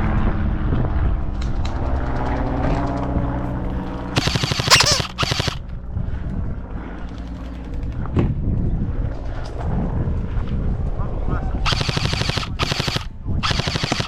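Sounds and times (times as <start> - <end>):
airsoft rifle full-auto burst: 4.2 - 5.6, 11.7 - 14.0.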